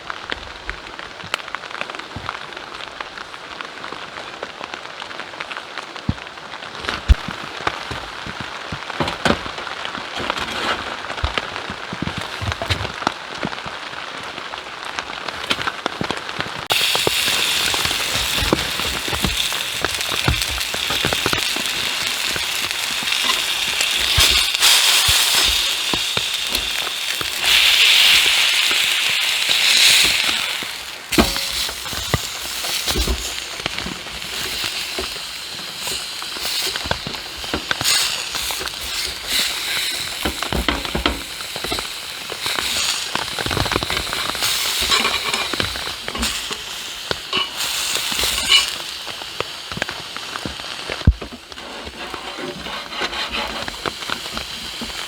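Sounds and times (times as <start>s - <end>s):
rain pattering: 0.0s - 51.8s, 52.6s - 55.0s
sharp crackles and ticks: 0.1s - 55.0s
steady hiss: 16.7s - 55.0s.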